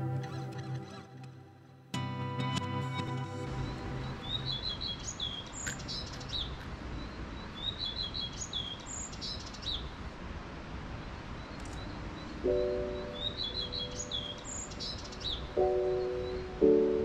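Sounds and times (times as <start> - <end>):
faint outdoor background noise: 0.0 - 17.0
songbird singing: 3.0 - 10.0, 11.0 - 17.0.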